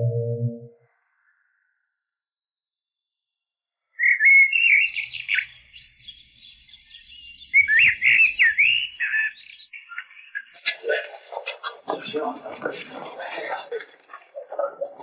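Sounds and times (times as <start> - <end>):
songbird whistling song: 3.8 - 10.7
bird chirps: 3.9 - 11.1.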